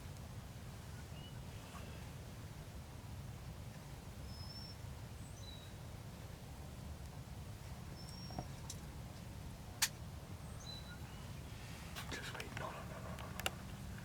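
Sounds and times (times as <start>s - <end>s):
small birds chirping: 10.4s - 14.0s.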